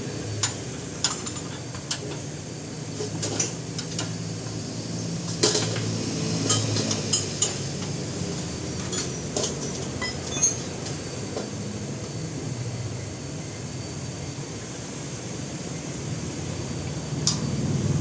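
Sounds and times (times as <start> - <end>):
tools clinking on steel: 8.8 - 11.0.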